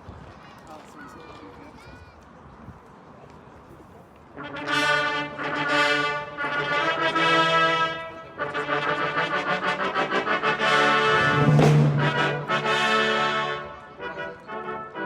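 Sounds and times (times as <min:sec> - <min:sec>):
military brass band playing: 0:04.4 - 0:15.0.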